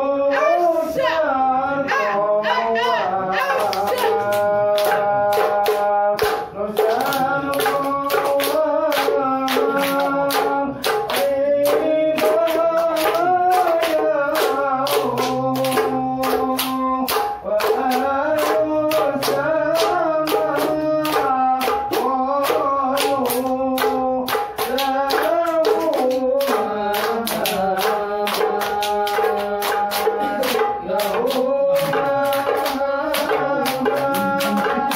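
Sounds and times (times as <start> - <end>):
group singing in unison: 0.0 - 34.9
frame drums: 3.3 - 34.9
hand claps: 3.4 - 34.9.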